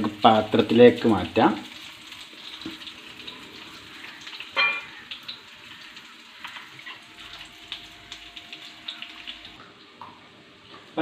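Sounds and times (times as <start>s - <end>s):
chicken sizzling in oil: 0.0s - 9.6s
ringing clink: 4.6s - 4.8s.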